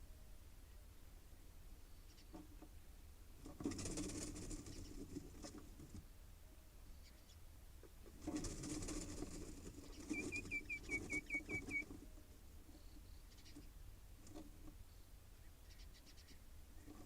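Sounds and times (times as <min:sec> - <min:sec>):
birds rustling nesting material: 0:03.4 - 0:06.1, 0:07.8 - 0:14.9, 0:16.7 - 0:17.0
short high bird chirps: 0:10.1 - 0:11.8.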